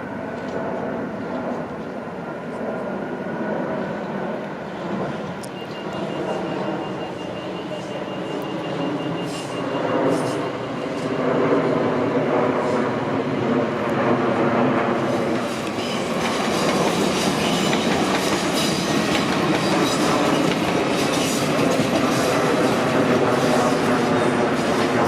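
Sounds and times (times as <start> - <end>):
passenger train passing: 0.0 - 25.0
wheels clacking over rail joints: 15.4 - 22.8.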